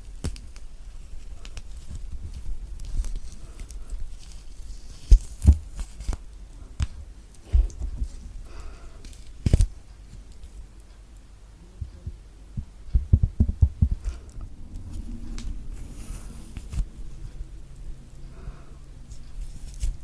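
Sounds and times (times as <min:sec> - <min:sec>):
dull low knocks: 0:11.8 - 0:15.8.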